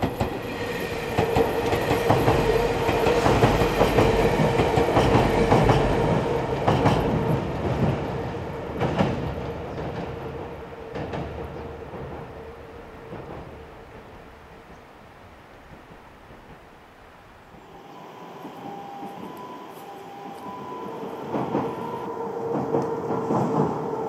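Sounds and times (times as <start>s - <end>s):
train wheels clattering over rail joints: 0.0s - 13.8s
steady train hum: 0.0s - 24.0s.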